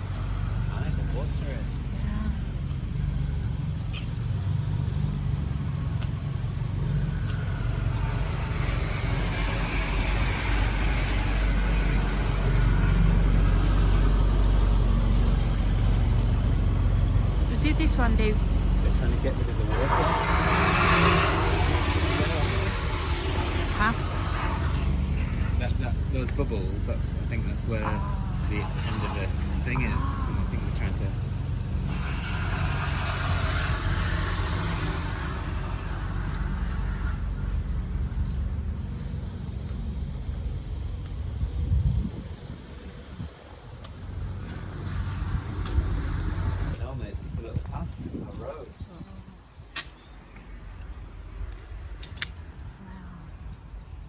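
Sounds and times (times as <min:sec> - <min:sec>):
low rumble: 0:00.0 - 0:49.6
engine running: 0:00.0 - 0:52.8
vehicle passing hiss: 0:03.0 - 0:27.7, 0:28.3 - 0:38.3.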